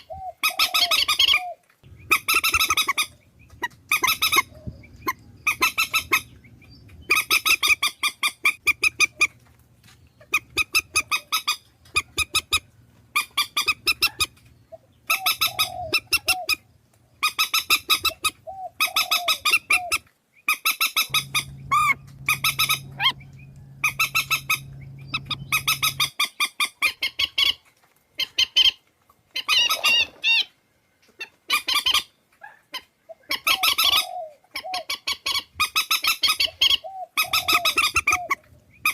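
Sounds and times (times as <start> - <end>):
swamphen nasal cackling calls: 0.0 - 9.4, 10.2 - 16.6, 17.2 - 20.0, 20.6 - 27.6, 32.8 - 38.9.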